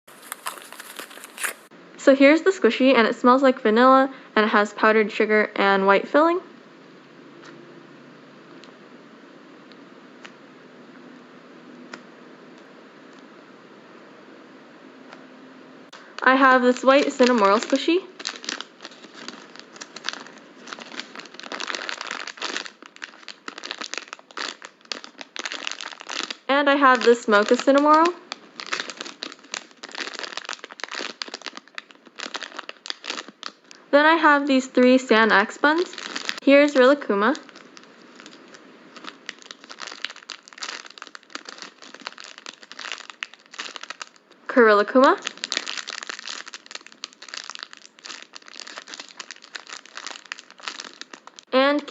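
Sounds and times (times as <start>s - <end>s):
plastic crinkling: 0.1s - 1.7s, 16.0s - 51.6s.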